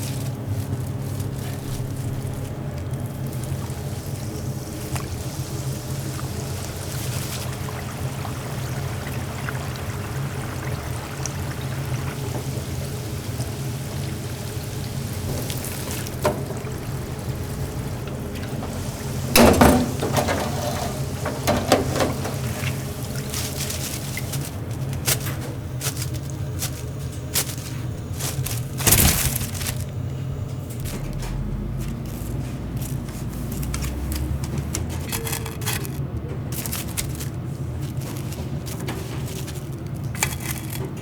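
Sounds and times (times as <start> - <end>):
oil sizzling in deep fryer: 0.0 - 30.1
steady low hum: 0.0 - 41.0
loud clatter: 19.3 - 22.7.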